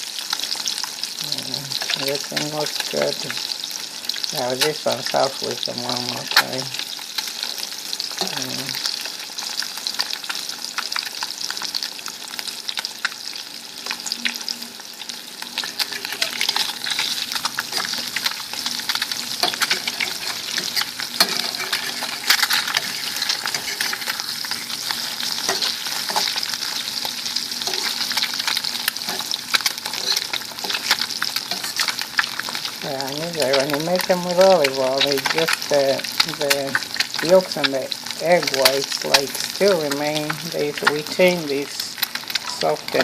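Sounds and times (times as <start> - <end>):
eggs sizzling in a pan: 0.0 - 43.0.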